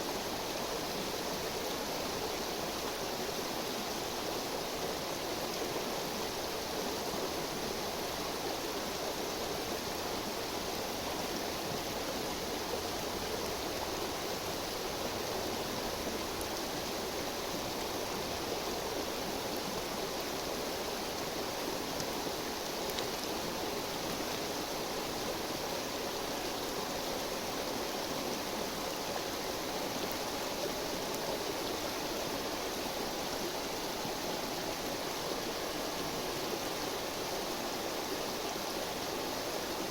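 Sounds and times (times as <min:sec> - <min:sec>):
river babbling: 0:00.0 - 0:39.9
faint clicks: 0:22.9 - 0:23.3.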